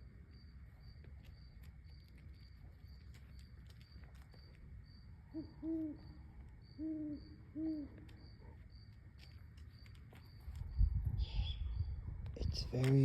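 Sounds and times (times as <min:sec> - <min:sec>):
owl hooting: 0:05.3 - 0:08.6.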